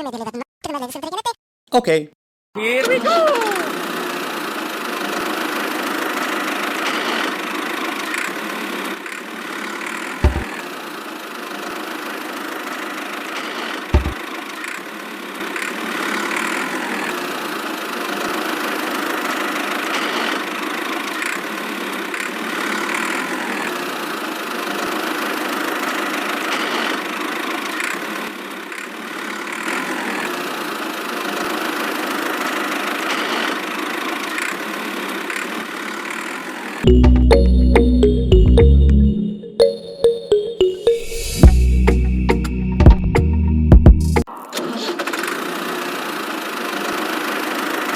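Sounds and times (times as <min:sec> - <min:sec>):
small motor droning: 0:03.6 - 0:36.8
low thumps: 0:10.2 - 0:10.4, 0:14.0 - 0:14.2.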